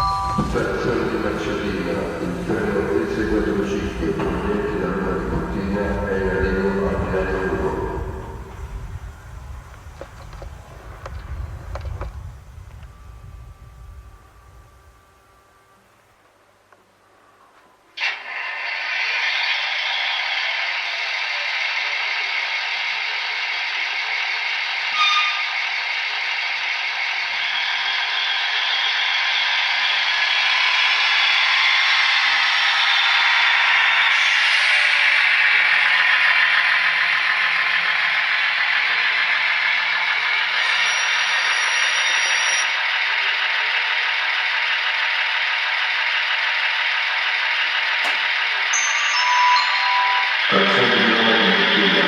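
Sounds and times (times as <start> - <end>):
short high-pitched tone: 0.0 - 0.8, 48.7 - 51.7
model train clattering: 43.4 - 48.7
sharp click: 48.0 - 48.3.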